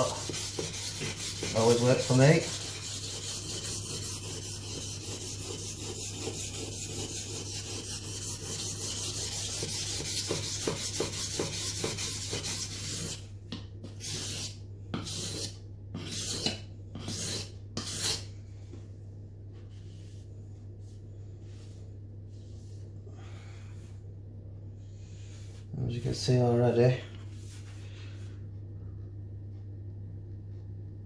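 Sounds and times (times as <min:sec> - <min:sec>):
blade scraping on whetstone: 0:00.0 - 0:13.2, 0:14.0 - 0:18.3.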